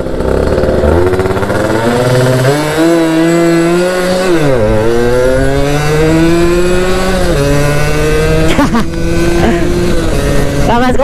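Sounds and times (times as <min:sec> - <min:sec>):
two-stroke engine revving hard: 0:00.0 - 0:11.0.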